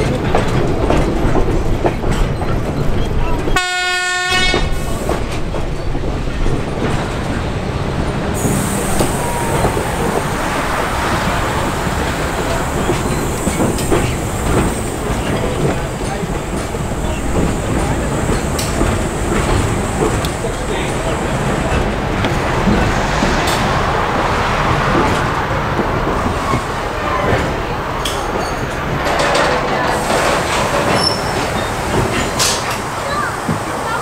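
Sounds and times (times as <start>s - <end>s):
train rumble and rail clatter: 0.0s - 34.0s
train horn blast: 3.6s - 4.8s.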